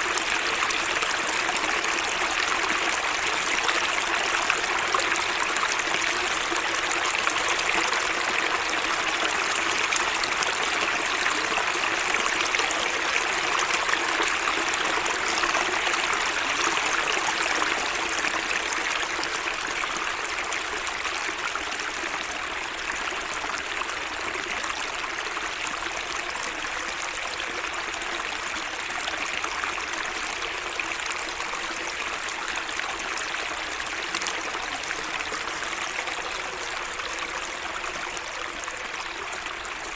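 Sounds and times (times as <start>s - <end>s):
water running in a small stream: 0.0s - 39.9s.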